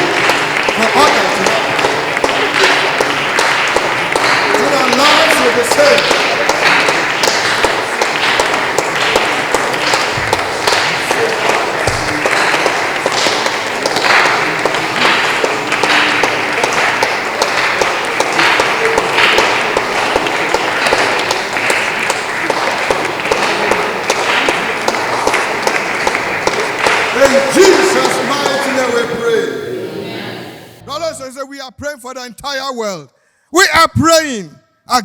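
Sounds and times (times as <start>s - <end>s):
people clapping: 0.0s - 29.6s
people praying aloud: 0.0s - 31.4s.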